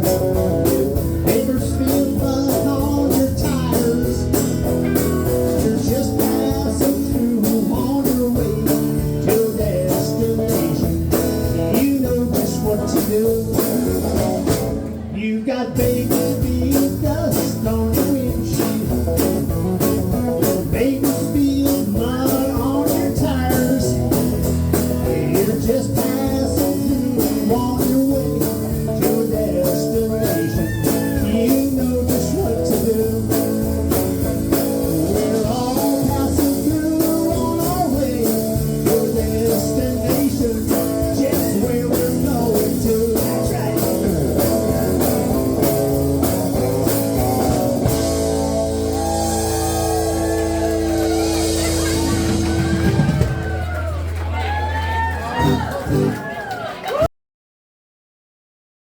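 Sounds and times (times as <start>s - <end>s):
lead guitar bending notes: 0.0s - 9.2s, 40.7s - 53.7s
country-rock band playing: 0.0s - 57.0s.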